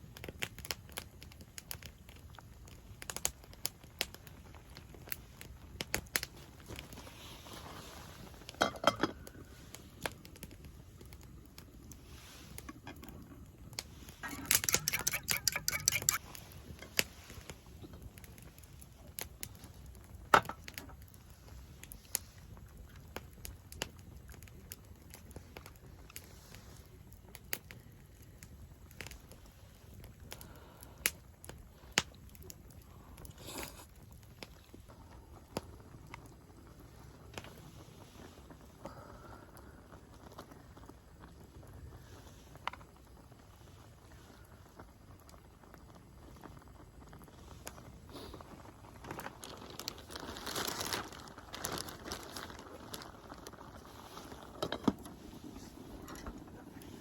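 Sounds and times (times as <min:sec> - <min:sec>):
campfire crackling and popping: 0:00.0 - 0:57.0
crinkling and rustling: 0:04.6 - 0:23.2, 0:45.4 - 0:57.0.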